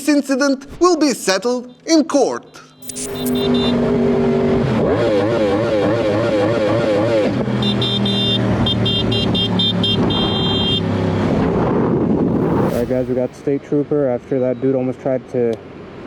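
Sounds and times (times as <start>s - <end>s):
rapid short high beeps: 2.5s - 3.6s
wind noise: 11.2s - 13.6s
warbling siren-like tone: 12.2s - 13.5s.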